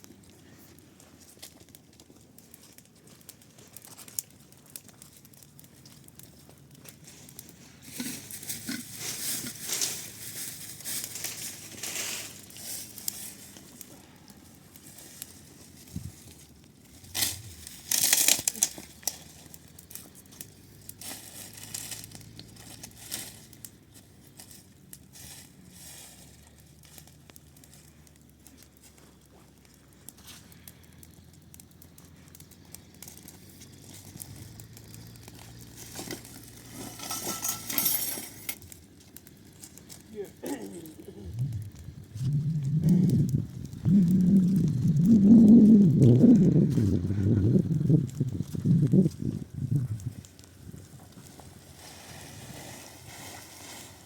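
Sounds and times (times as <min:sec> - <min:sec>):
papery crinkling and rustling: 0:00.0 - 0:37.4.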